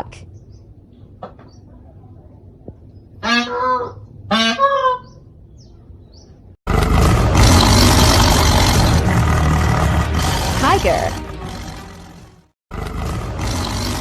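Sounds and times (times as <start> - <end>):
peacock calling: 3.2 - 6.4
loud steady rushing noise: 6.8 - 12.2.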